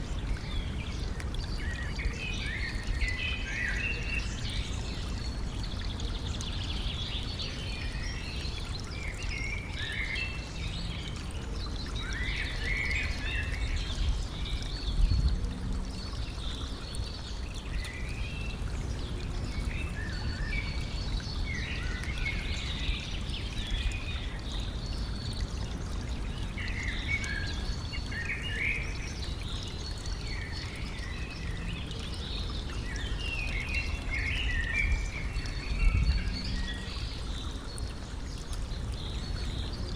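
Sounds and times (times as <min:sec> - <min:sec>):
small birds singing: 0:00.0 - 0:39.9
stream water running: 0:00.0 - 0:39.9.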